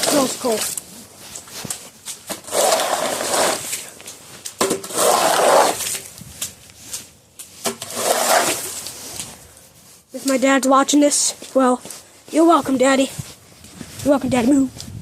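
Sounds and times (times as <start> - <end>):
snow shovel scraping: 0.0 - 6.2, 7.6 - 10.6.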